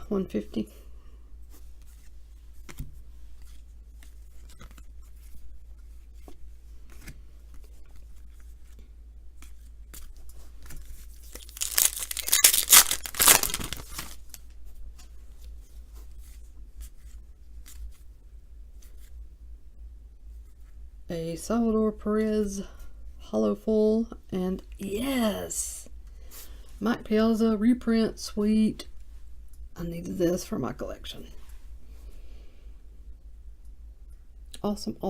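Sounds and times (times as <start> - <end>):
cards being handled: 1.5 - 14.5
foil wrapper tearing open: 11.2 - 14.4.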